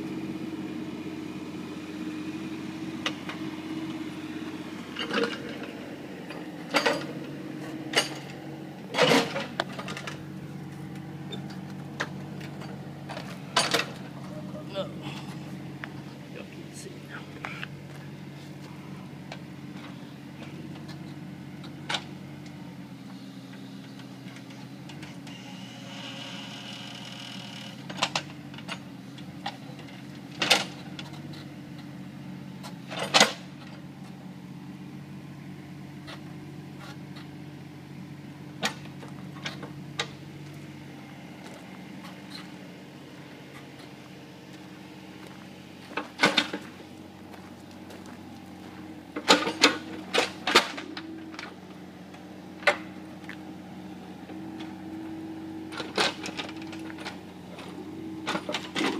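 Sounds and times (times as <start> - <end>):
excavator engine running: 0.0 - 58.9
brief machine whine: 25.3 - 27.7.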